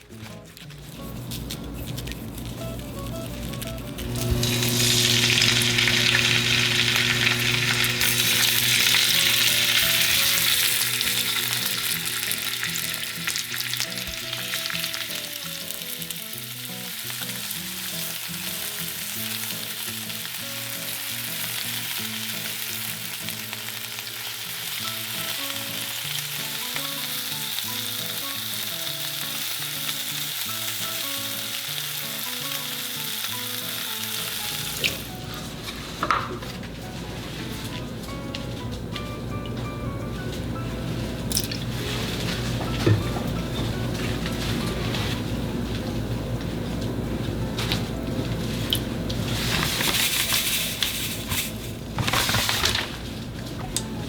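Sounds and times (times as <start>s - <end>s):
food sizzling in a pan: 4.0s - 36.0s.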